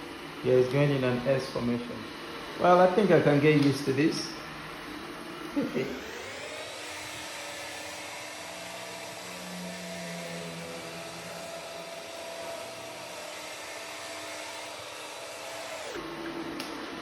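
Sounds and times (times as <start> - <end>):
robot vacuum running: 4.2 - 17.0.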